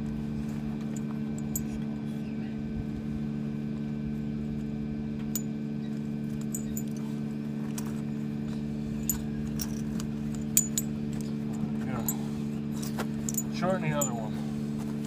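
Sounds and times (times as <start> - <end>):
tractor engine idling: 0.0 - 15.0
tire chain links clinking: 0.8 - 1.8, 5.3 - 8.1, 8.9 - 14.4.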